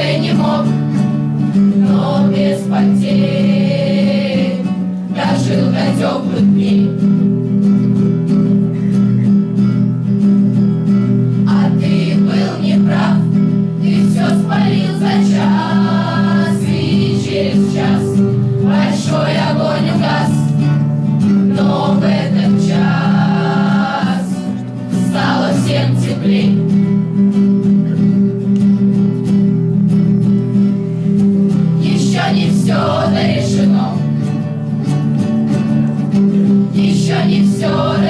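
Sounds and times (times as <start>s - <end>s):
group of voices singing: 0.0s - 7.3s, 11.3s - 26.9s, 31.6s - 34.5s, 36.4s - 38.0s
strummed acoustic guitar: 0.0s - 38.0s.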